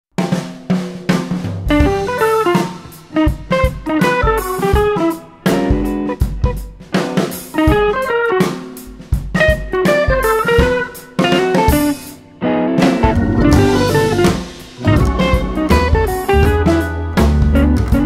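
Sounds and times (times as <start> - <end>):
drum kit beat: 0.1 - 18.0
plucked guitar: 9.4 - 18.0.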